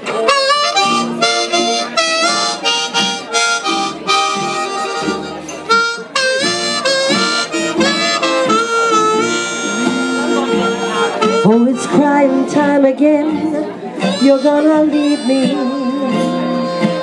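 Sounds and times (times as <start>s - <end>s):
live country band: 0.0s - 17.0s
reedy wind instrument melody: 0.0s - 17.0s.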